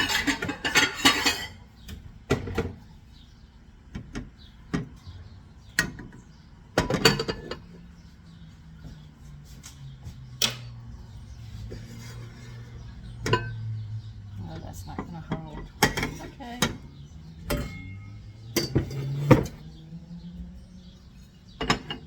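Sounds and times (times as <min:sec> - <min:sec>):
dishes and pot knocking and clinking: 0:00.0 - 0:01.6, 0:06.8 - 0:07.6, 0:13.2 - 0:13.6, 0:15.0 - 0:19.6, 0:21.6 - 0:22.0.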